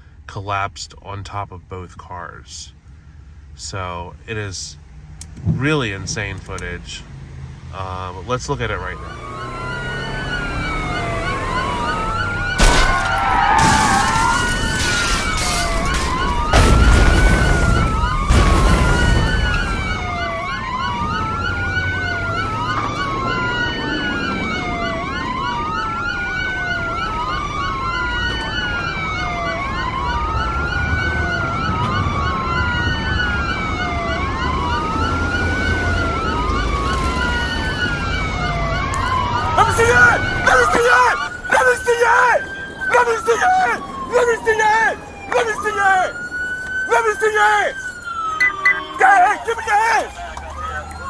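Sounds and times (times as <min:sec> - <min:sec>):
police sirens wailing: 0:06.4 - 0:51.0
car crashing impacts: 0:12.4 - 0:20.7.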